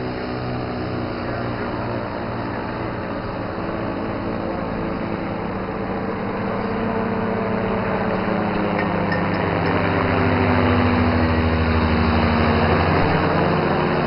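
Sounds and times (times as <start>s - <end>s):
aircraft piston engine: 0.0s - 14.0s.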